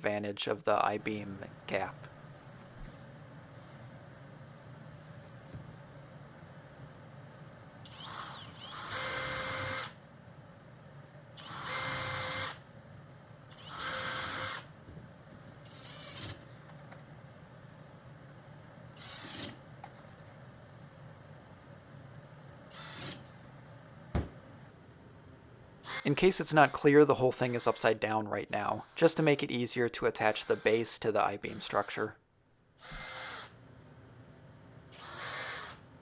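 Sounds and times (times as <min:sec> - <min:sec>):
power drill driving screws: 0:07.9 - 0:10.0, 0:11.4 - 0:12.6, 0:13.5 - 0:14.7, 0:15.7 - 0:16.4, 0:19.0 - 0:19.6, 0:22.7 - 0:23.2, 0:25.9 - 0:27.9, 0:30.2 - 0:30.9, 0:32.8 - 0:33.6, 0:35.0 - 0:35.8.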